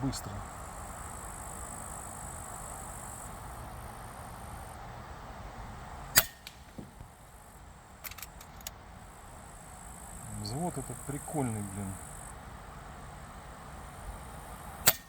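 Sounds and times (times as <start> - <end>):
air rifle shot: 6.1 - 7.1.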